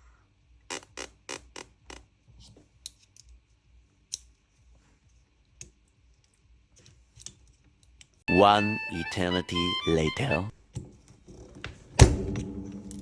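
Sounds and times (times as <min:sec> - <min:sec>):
metal parts clicking: 0:05.6 - 0:08.2.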